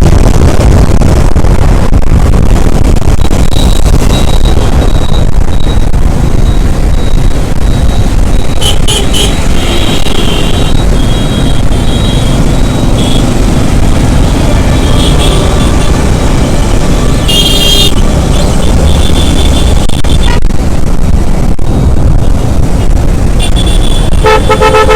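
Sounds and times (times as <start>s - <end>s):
wind and road noise rumble: 0.0s - 24.9s
horn beeps: 3.4s - 13.4s.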